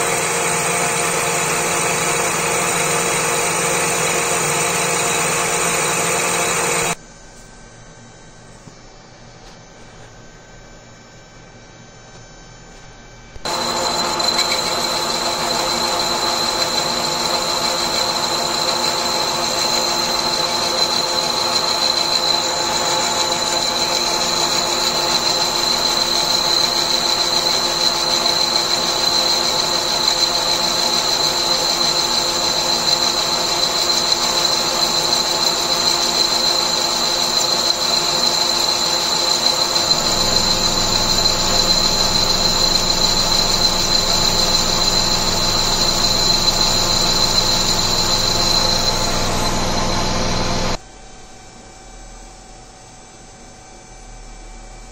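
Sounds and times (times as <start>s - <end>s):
lathe whining: 0.0s - 7.0s, 13.4s - 50.8s
low hum: 39.8s - 50.8s.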